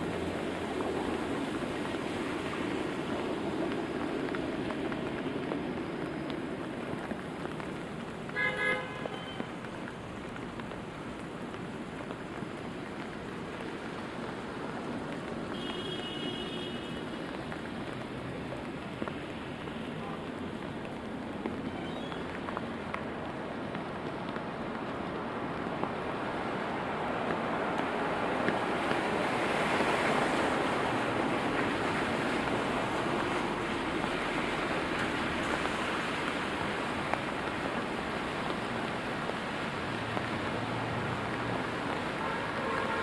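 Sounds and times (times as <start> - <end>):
steady rainfall: 0.0 - 43.0
traffic going by: 0.0 - 43.0
car horn toots: 8.4 - 9.4.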